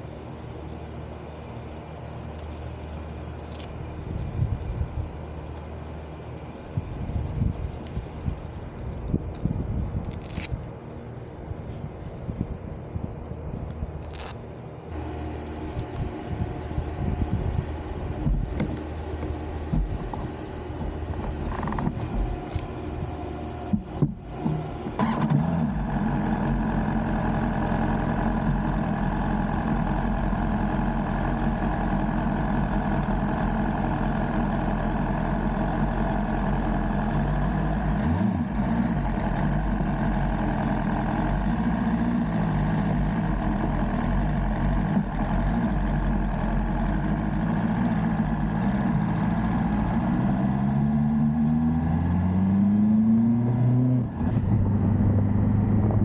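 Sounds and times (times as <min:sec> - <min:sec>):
motorcycle engine running: 0:15.0 - 0:50.7, 0:54.1 - 0:56.0.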